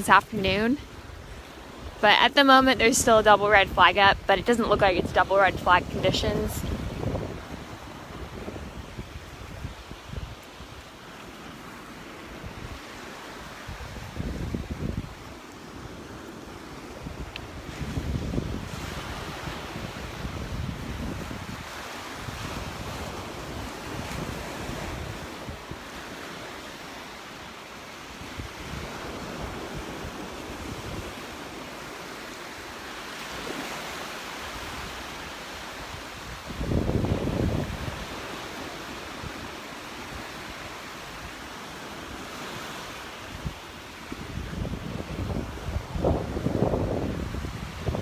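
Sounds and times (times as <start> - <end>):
wind buffeting microphone: 0.0 - 10.9, 12.0 - 26.6, 28.2 - 31.6, 34.4 - 41.4, 42.2 - 48.0
surf washing onto beach: 0.0 - 48.0.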